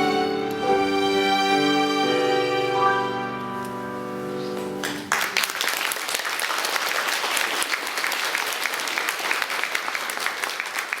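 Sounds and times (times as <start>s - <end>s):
music: 0.0s - 5.2s
audience applauding: 4.5s - 11.0s.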